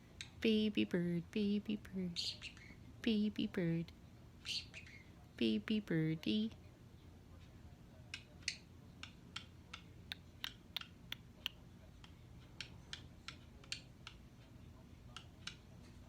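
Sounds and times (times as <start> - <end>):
baby bird clicking: 8.1 - 15.7.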